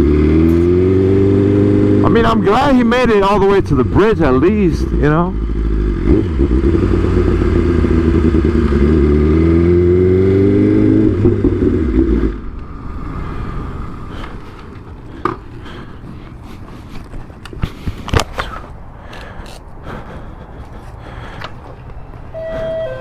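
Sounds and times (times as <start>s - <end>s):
motorcycle engine running: 0.0s - 2.5s, 3.2s - 12.5s.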